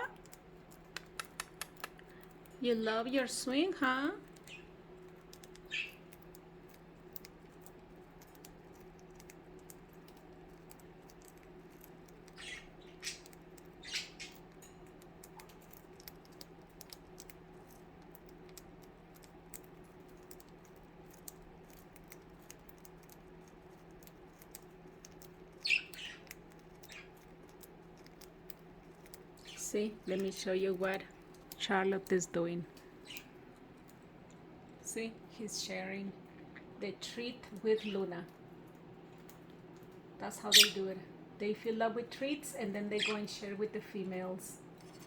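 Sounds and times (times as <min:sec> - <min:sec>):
beaks and feet tapping on cage: 0:00.0 - 0:34.8
steady low hum: 0:00.0 - 0:45.0
budgies chirping: 0:04.3 - 0:06.2, 0:10.7 - 0:14.6, 0:24.5 - 0:28.2, 0:28.9 - 0:31.0, 0:32.9 - 0:33.4, 0:37.6 - 0:38.2, 0:40.3 - 0:41.0, 0:42.7 - 0:43.6.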